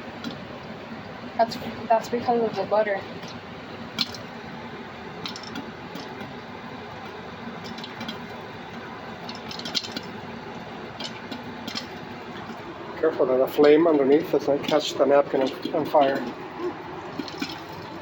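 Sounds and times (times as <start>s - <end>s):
popcorn kernels popping: 3.2s - 4.3s, 5.2s - 6.4s, 7.0s - 8.4s, 9.2s - 10.2s, 10.9s - 12.0s, 17.1s - 17.7s.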